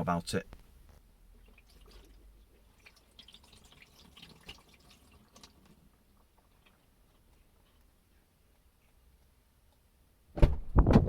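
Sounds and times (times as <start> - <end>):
water dripping on windscreen: 1.3 - 7.8.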